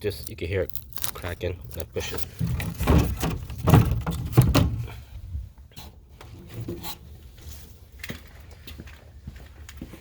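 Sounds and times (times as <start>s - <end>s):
wooden boards cracking and creaking: 0.2s - 4.9s.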